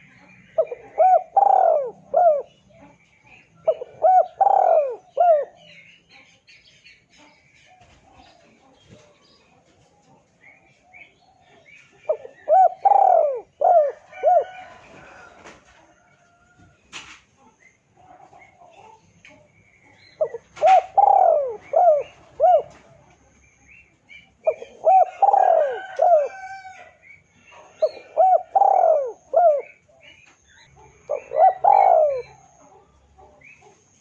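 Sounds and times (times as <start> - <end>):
dove cooing: 0.0 - 5.8, 10.8 - 16.8, 19.9 - 23.2, 24.3 - 34.0
small birds chirping: 0.0 - 34.0.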